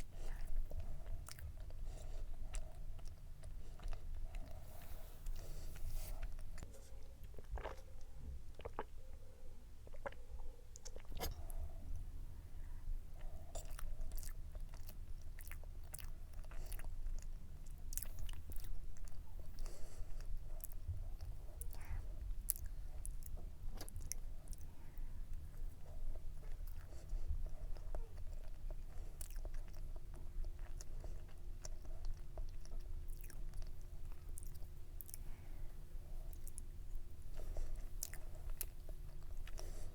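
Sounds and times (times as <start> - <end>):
chewing cake: 0.0 - 39.9.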